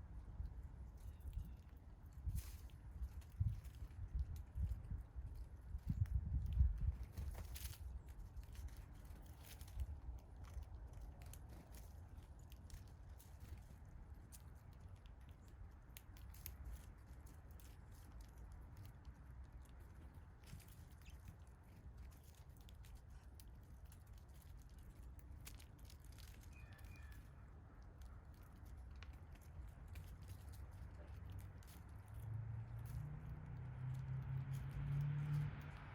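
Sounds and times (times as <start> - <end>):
birds pecking at seed: 0.0 - 35.9
low outdoor rumble: 0.0 - 35.9
bird chirp: 26.5 - 27.4.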